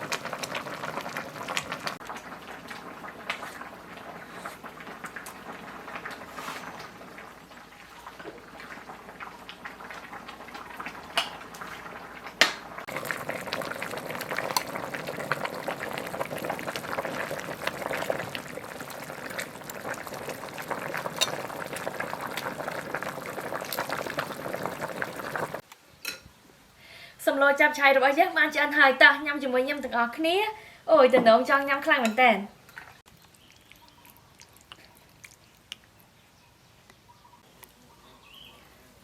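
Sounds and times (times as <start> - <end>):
food bubbling in a pot: 0.0 - 25.6, 32.7 - 36.3.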